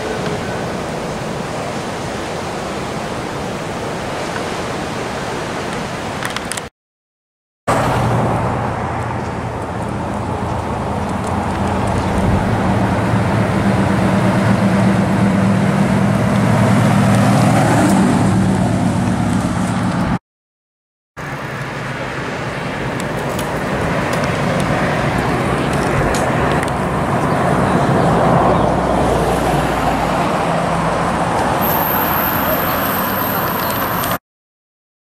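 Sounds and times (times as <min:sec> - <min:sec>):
car engine driving past: 0:07.7 - 0:20.0
cars idling and rolling by: 0:07.7 - 0:20.2, 0:21.2 - 0:34.2.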